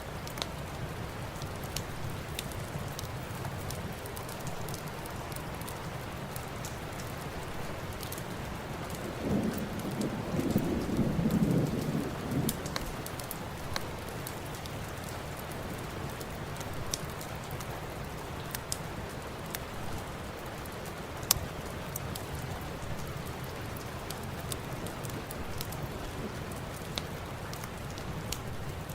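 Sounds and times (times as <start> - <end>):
fireplace crackling and popping: 0.0 - 28.9
heavy rain: 0.0 - 28.9
thunder rumbling: 8.5 - 14.1, 24.2 - 28.9.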